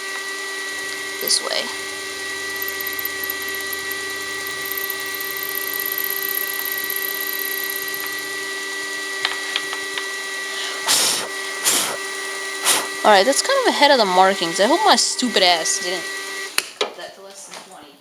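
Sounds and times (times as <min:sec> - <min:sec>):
milling machine whine: 0:00.0 - 0:16.6.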